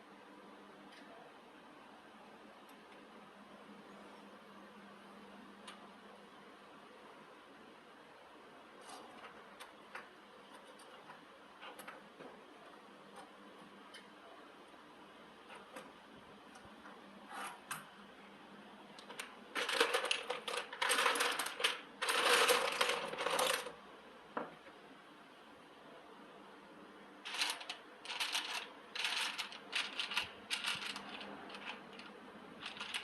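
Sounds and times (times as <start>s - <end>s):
small metal parts clinking: 27.3s - 33.0s.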